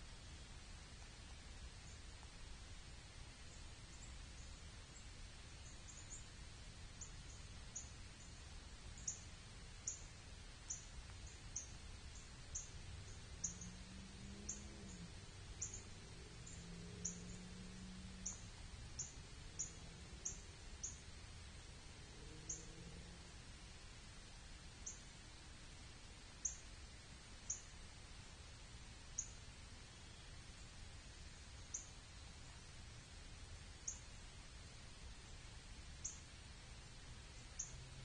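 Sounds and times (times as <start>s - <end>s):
faint low hum: 0.0s - 38.0s
quiet hiss: 0.0s - 38.0s
small bird high chirps: 31.6s - 32.0s.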